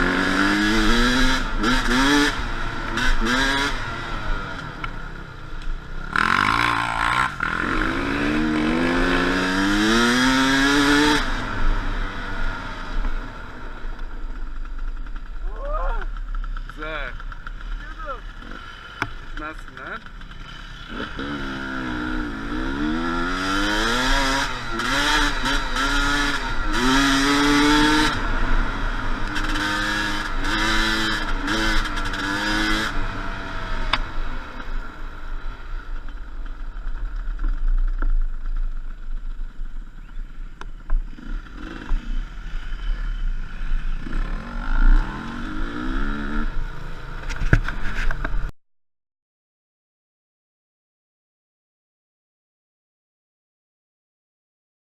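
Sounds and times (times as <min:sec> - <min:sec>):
dirt bike engine revving: 0:00.0 - 0:35.9, 0:41.1 - 0:48.5.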